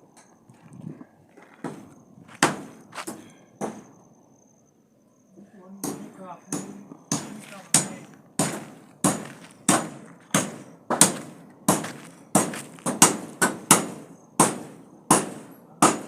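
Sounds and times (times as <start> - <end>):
hammer blows ringing: 5.8 - 16.0.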